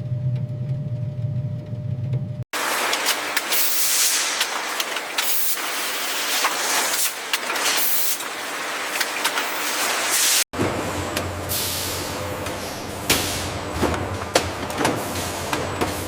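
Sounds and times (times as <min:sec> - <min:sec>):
hissing spray: 0:02.6 - 0:10.5.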